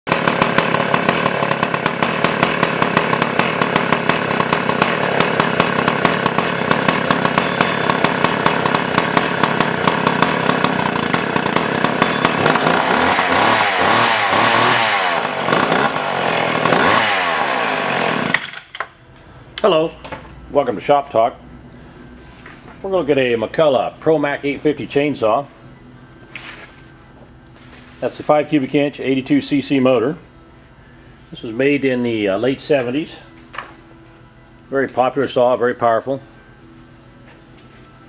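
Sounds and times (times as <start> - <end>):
chainsaw idling and revving: 0.1 - 18.4.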